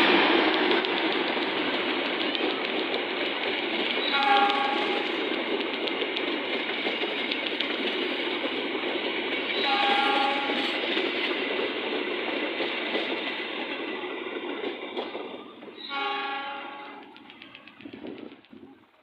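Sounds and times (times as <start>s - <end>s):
diesel train passing: 0.0s - 19.0s
train horn blast: 4.1s - 5.1s, 9.6s - 10.8s, 15.9s - 17.1s.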